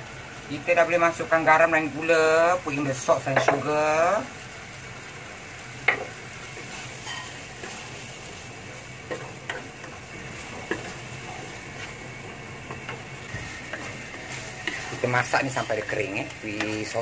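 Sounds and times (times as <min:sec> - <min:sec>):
chili paste sizzling in oil: 0:00.0 - 0:17.0
wooden spatula scraping a pan: 0:05.9 - 0:17.0.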